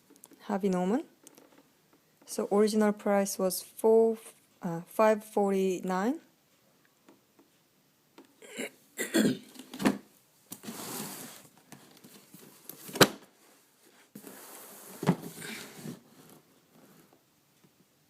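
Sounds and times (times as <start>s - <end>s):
rubbing and rustling: 10.5s - 17.2s.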